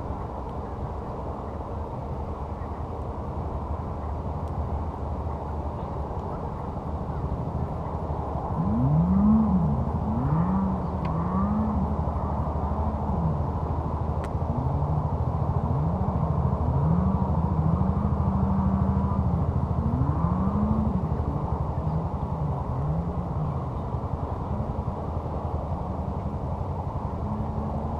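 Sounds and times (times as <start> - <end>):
steady low hum: 0.0 - 27.9
off-road vehicle engine revving: 8.4 - 27.9.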